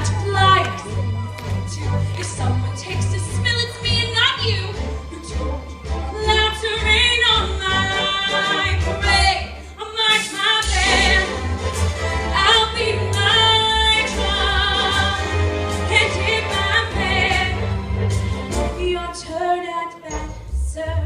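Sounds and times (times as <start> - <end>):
instrumental accompaniment with bass: 10.6 - 21.0
woman singing with vibrato: 12.3 - 17.6, 18.7 - 21.0.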